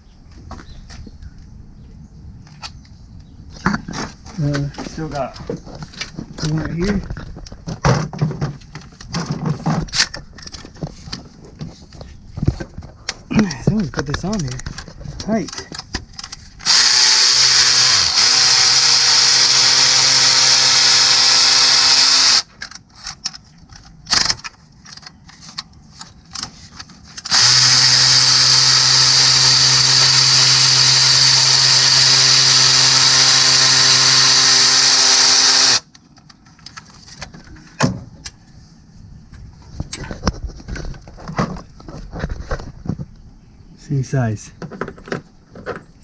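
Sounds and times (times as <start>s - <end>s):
cordless power tool spinning: 16.6s - 22.5s, 27.2s - 35.9s.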